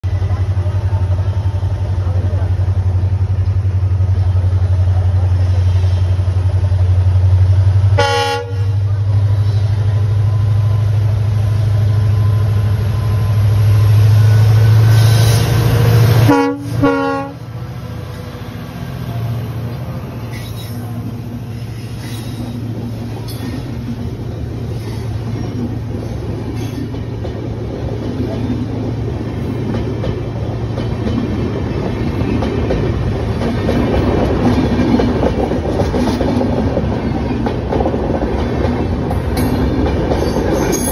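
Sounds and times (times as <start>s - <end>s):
steel wheels rumbling on rails: 0.0s - 40.9s
train low drone: 0.0s - 40.9s
locomotive horn blasts: 8.0s - 8.8s, 16.2s - 17.5s.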